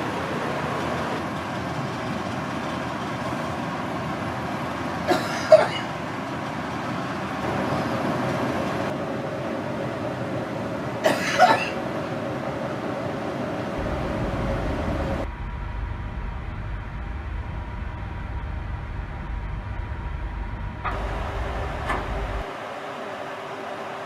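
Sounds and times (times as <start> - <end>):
yacht engines: 0.0 - 24.0
wind and water rushing: 6.0 - 15.3.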